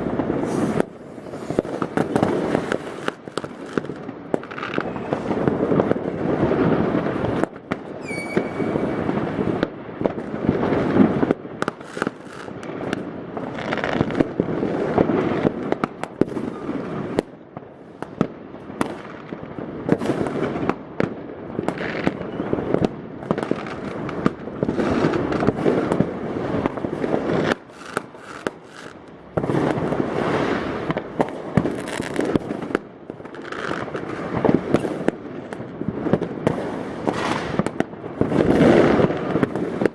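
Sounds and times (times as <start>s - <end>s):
fireworks bangs and crackling: 0.0s - 39.9s
short high whistle: 8.0s - 8.8s.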